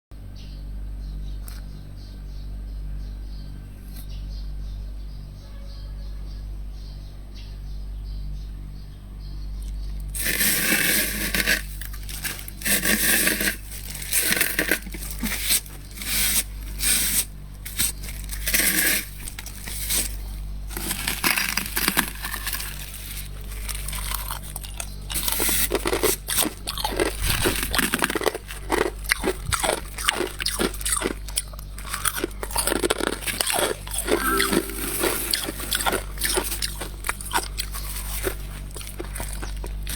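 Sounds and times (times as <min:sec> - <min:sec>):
frost being scraped: 0:10.2 - 0:20.2.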